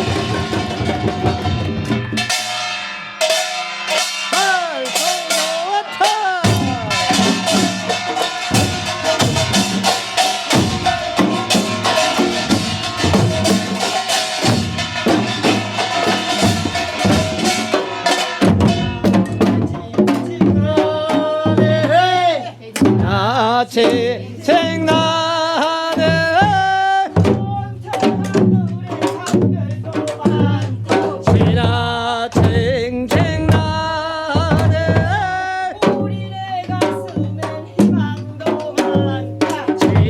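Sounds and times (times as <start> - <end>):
small gongs: 0.0 - 19.6
hourglass drums beating: 0.0 - 20.8
voices singing: 3.3 - 40.0.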